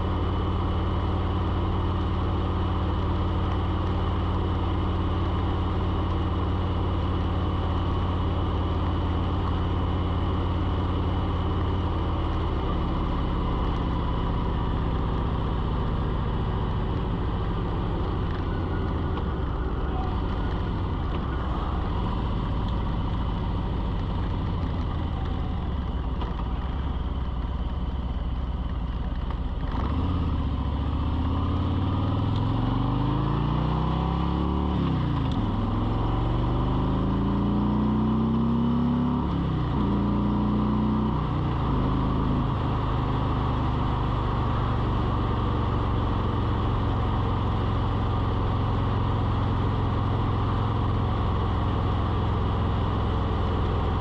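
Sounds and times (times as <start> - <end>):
vehicle engine speeding up: 29.6 - 47.9.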